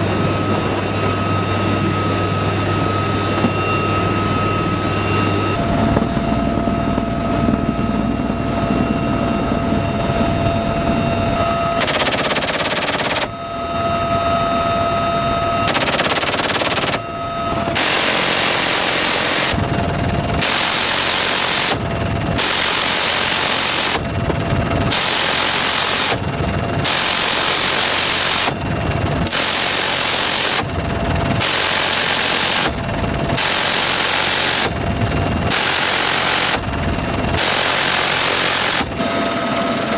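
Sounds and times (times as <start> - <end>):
helicopter turbine whine: 0.0 - 39.9
machine-gun bursts: 11.8 - 13.3, 15.7 - 17.0, 20.4 - 24.2, 24.8 - 28.6, 29.3 - 39.0.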